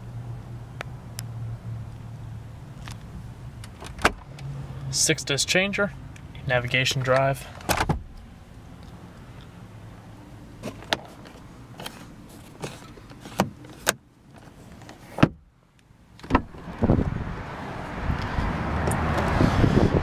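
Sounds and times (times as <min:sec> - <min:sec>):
car door opening: 0:02.8 - 0:04.5, 0:07.1 - 0:08.3, 0:10.6 - 0:15.5, 0:16.1 - 0:17.2
outside noise rushing: 0:16.2 - 0:20.0.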